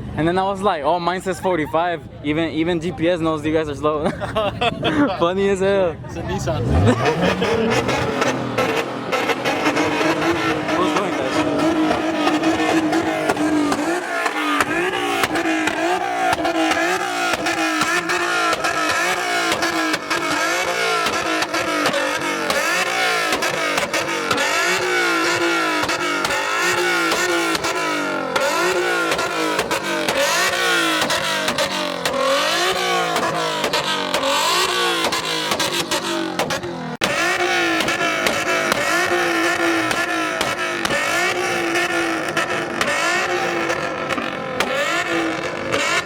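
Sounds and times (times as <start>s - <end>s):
car engines revving: 0.0s - 46.0s
exhaust crackle: 6.4s - 46.0s.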